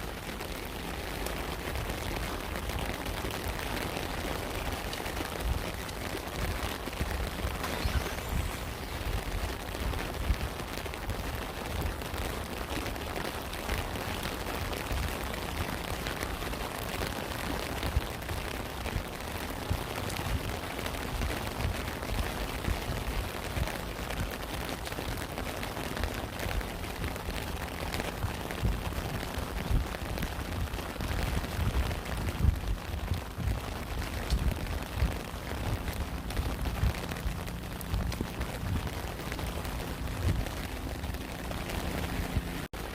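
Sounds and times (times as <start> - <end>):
rain falling: 0.0 - 42.9
low rumble: 0.2 - 12.2, 14.8 - 42.9.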